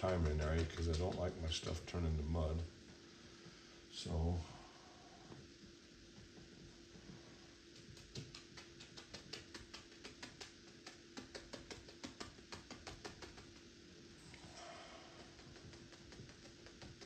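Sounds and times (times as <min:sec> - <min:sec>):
paintbrush tapping on canvas: 0:00.0 - 0:01.4, 0:07.8 - 0:13.7, 0:15.2 - 0:17.0
faint steady hum: 0:00.0 - 0:17.0.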